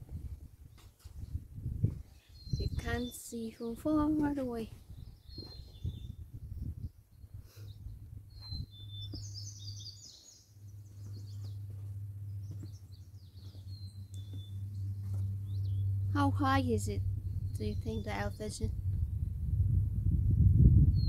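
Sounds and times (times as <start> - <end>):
low steady rumble: 0.0 - 21.0
songbirds chirping: 0.1 - 19.3
bird trill: 7.6 - 16.2.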